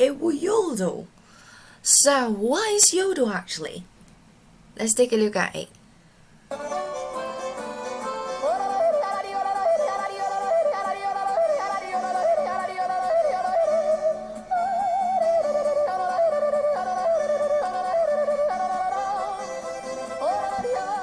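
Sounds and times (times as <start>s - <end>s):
instrumental accompaniment: 6.5s - 21.0s
person yodeling: 6.5s - 21.0s.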